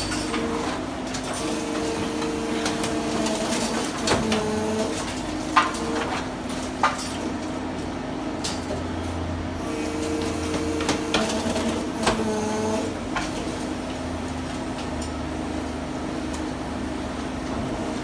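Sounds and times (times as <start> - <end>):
demolition knocks and clanks: 0.0 - 7.5
hydraulic hum: 9.6 - 13.1.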